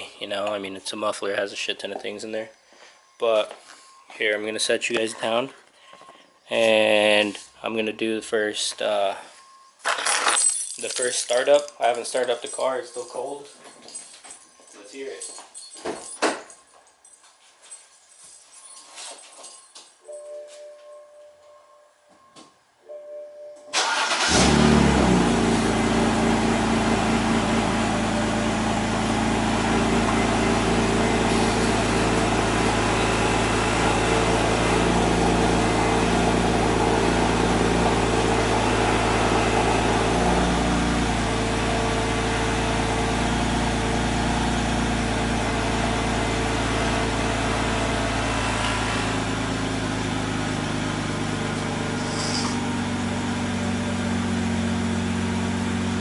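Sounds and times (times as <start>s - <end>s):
car engine cold idling: 23.8s - 56.0s.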